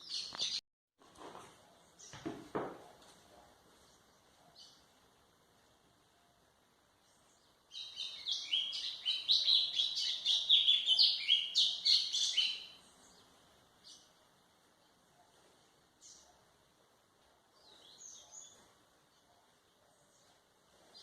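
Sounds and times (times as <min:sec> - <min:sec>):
bird singing rapid falling notes: 0:07.2 - 0:13.2.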